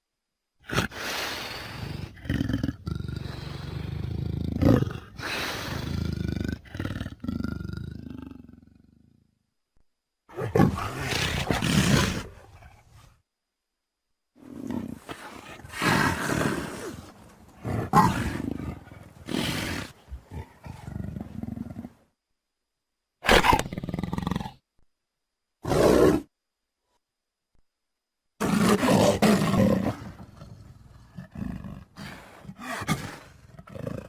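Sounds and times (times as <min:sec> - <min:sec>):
big cat roaring: 0:01.7 - 0:08.9, 0:10.3 - 0:12.9, 0:14.4 - 0:22.0, 0:25.6 - 0:26.3, 0:28.4 - 0:34.0.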